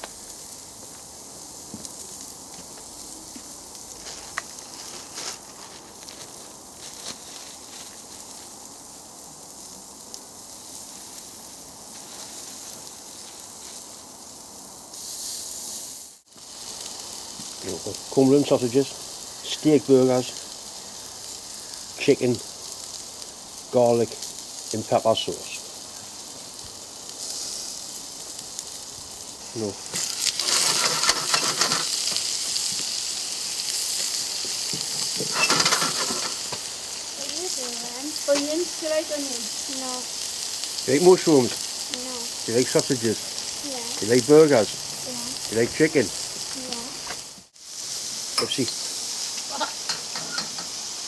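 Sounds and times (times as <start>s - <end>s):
meat sizzling on grill: 0.0s - 51.0s
clicks and scrapes: 30.0s - 32.2s.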